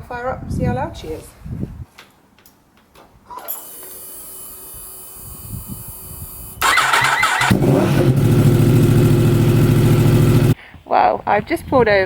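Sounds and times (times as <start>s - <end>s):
motorcycle starter cranking: 3.4s - 10.6s
motorcycle engine idling: 6.7s - 10.6s.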